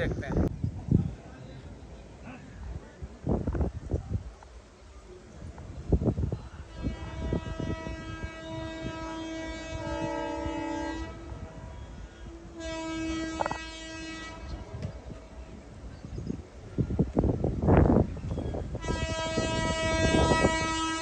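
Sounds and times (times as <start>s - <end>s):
locomotive horn blasts: 6.6s - 14.8s, 18.7s - 21.0s.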